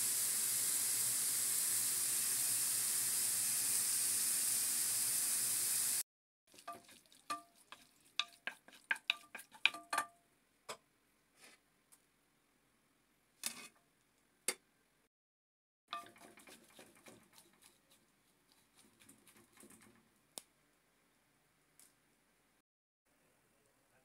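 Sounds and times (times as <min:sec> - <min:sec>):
food sizzling in a wok: 0:00.0 - 0:09.6
spatula scraping a pan: 0:06.5 - 0:09.9, 0:15.9 - 0:20.0.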